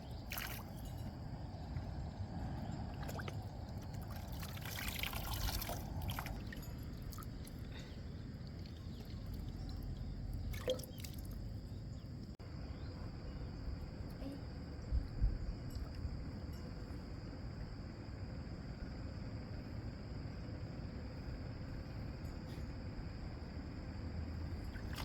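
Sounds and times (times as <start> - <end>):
water trickling and dripping: 2.6 - 12.4
water pouring rush: 4.1 - 6.7.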